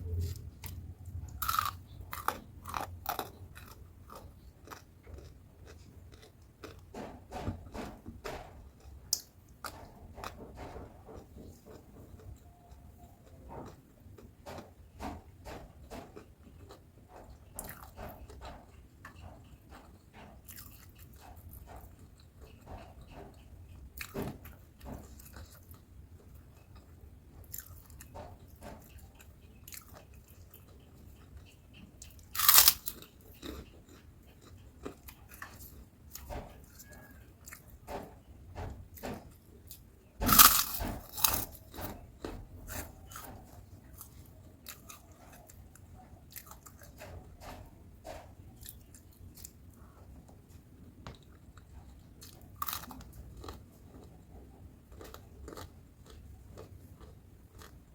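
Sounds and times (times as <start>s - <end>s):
person chewing crunchy food: 0.0s - 7.3s, 7.9s - 10.4s, 11.2s - 15.3s, 15.9s - 37.8s, 38.9s - 47.1s, 51.1s - 57.9s
loud crunching bites: 32.4s - 33.5s, 40.3s - 41.6s.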